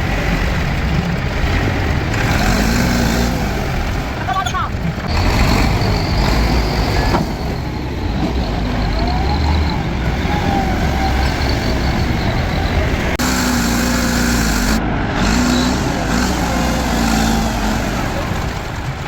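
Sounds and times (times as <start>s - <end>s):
diesel engine rumbling: 0.0s - 19.0s
wavering hum: 9.7s - 18.9s.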